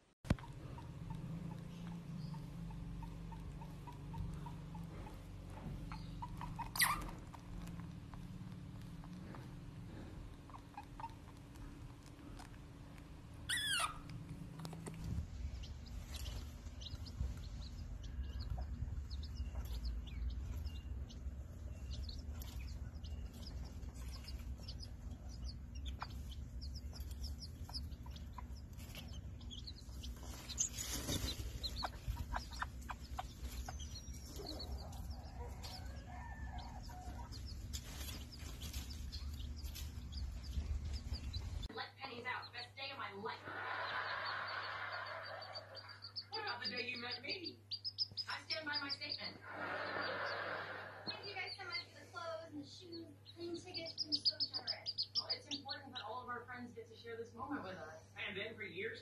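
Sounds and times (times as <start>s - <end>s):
chicks peeping: 0.3s - 41.7s, 42.3s - 56.5s
hen clucking: 0.3s - 41.8s, 42.4s - 56.5s
baby otter squealing: 5.9s - 7.3s, 10.5s - 11.4s, 13.4s - 14.2s.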